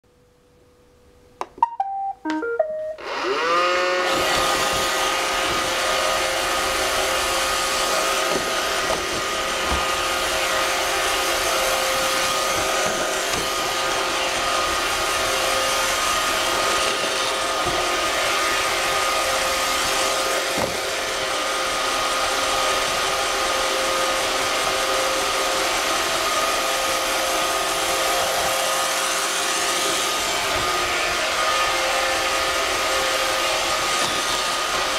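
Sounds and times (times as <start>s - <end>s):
robot vacuum beeping tones: 1.6s - 3.6s
robot vacuum motor whine: 3.0s - 34.9s.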